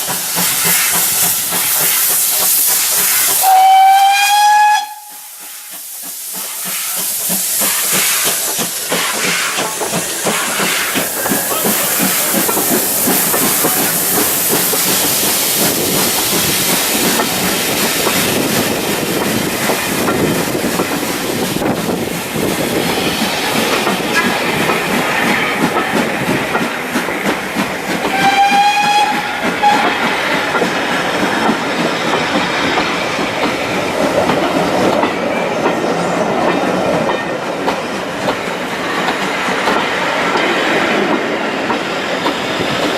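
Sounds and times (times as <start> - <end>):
train wheels clicking over rails: 0.0 - 42.9
steam whistle blast: 3.4 - 5.3, 28.1 - 29.9.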